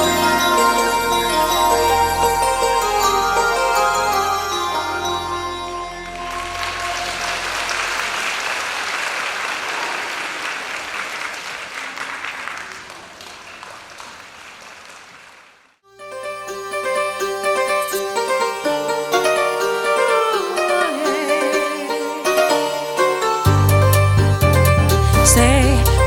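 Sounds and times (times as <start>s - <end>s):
music playing: 0.0s - 8.2s, 16.0s - 26.0s
audience applause: 6.2s - 15.7s.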